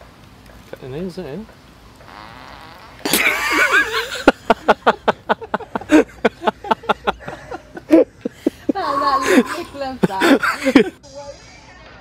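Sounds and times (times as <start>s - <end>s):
young man laughing hard: 3.1s - 11.0s.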